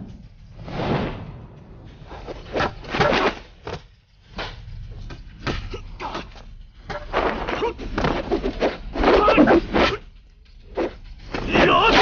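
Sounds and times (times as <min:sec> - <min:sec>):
wooden staffs swishing: 0:06.9 - 0:10.1.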